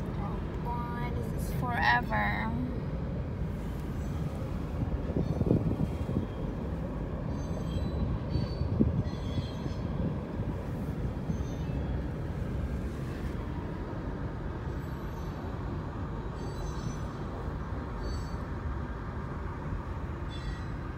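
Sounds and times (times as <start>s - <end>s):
freight train wheels rumbling: 0.0s - 20.9s
faint high squeaks: 7.3s - 9.9s, 11.2s - 12.0s, 16.3s - 17.3s, 18.0s - 18.5s, 20.3s - 20.9s.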